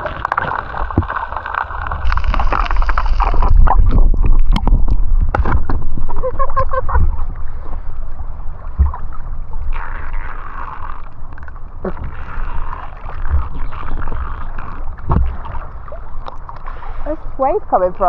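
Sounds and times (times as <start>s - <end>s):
sea water sloshing: 0.0s - 18.0s
heavy low rumble: 1.8s - 9.8s.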